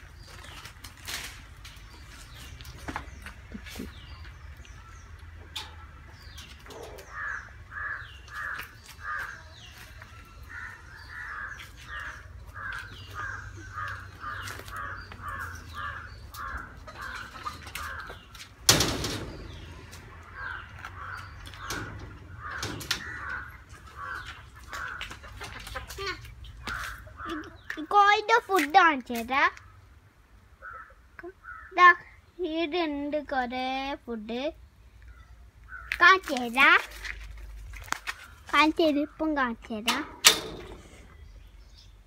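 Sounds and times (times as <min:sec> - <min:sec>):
bird calling: 0:03.1 - 0:18.4, 0:19.3 - 0:27.8.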